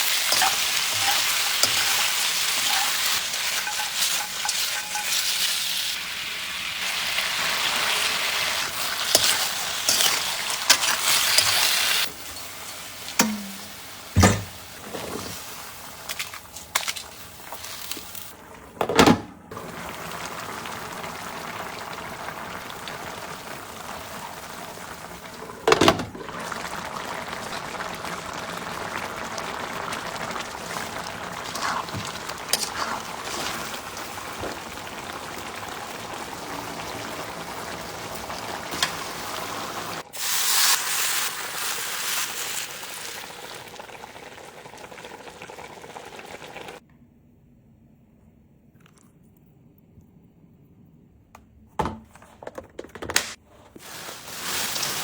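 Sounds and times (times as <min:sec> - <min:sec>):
loud kitchen clatters: 0:00.0 - 0:05.6, 0:08.8 - 0:15.5
food sizzling: 0:00.0 - 0:18.4, 0:19.5 - 0:46.8, 0:53.8 - 0:55.0.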